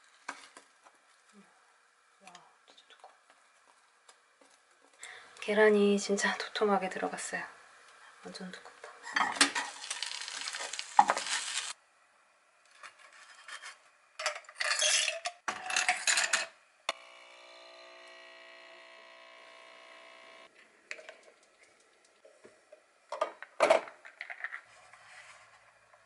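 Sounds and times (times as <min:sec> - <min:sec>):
sizzling in a frying pan: 0:09.4 - 0:11.8
coffee machine pump humming: 0:16.9 - 0:20.5.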